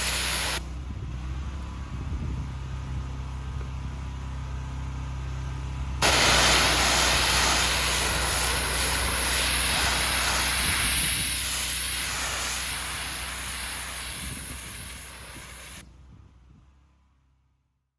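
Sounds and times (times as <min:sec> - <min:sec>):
water jet hissing: 0:00.0 - 0:00.6, 0:06.0 - 0:15.8
pressure washer engine hum: 0:00.0 - 0:00.7, 0:05.5 - 0:15.8.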